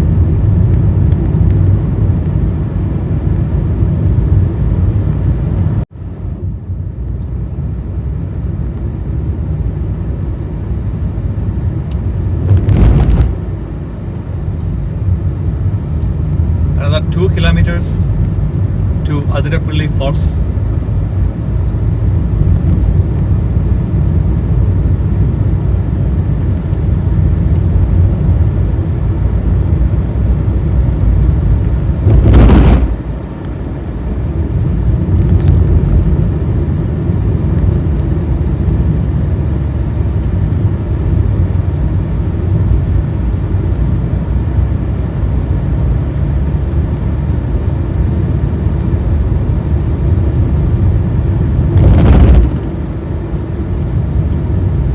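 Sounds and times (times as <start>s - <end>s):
car engine and tyres rumbling: 0.0s - 54.9s
loud burst of noise: 32.0s - 33.5s, 51.6s - 53.3s.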